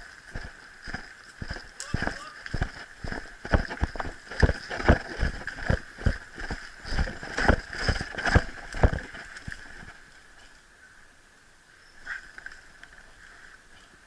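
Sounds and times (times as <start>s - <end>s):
heavy footsteps: 0.0s - 10.0s.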